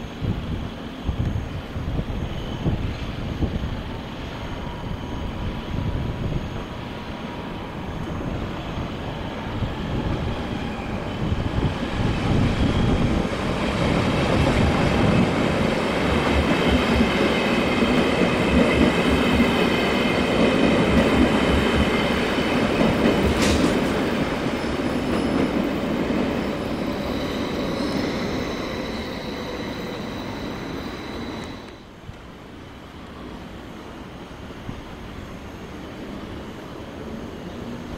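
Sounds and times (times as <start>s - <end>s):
train rumble with wheel clatter: 0.0s - 37.9s
high squealing tones: 26.6s - 31.8s.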